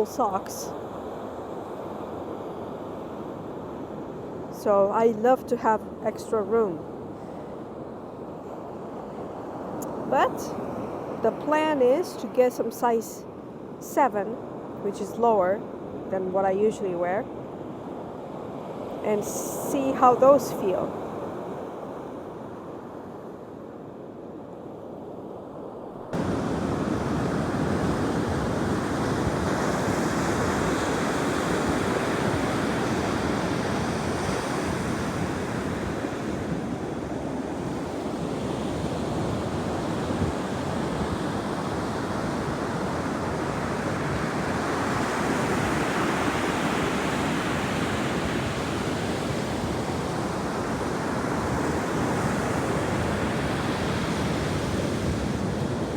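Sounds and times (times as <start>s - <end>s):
ocean surf washing onto beach: 26.1s - 55.9s.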